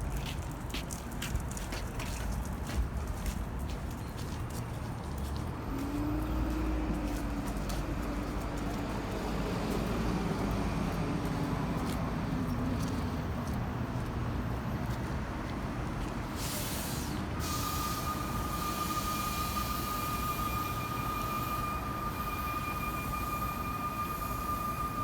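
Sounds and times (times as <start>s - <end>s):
city street traffic: 0.0s - 25.0s
high-pitched whine: 17.4s - 25.0s.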